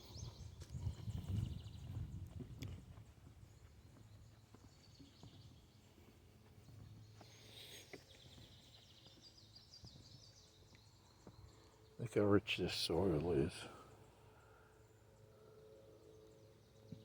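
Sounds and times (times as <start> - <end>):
footsteps on wooden boardwalk: 0.0 - 11.7.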